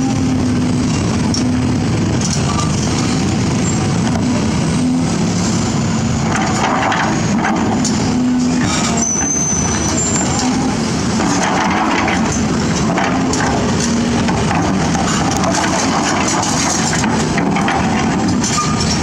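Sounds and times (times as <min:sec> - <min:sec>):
excavator diesel engine: 0:00.0 - 0:19.0
bucket knocking and scraping rock: 0:11.1 - 0:19.0.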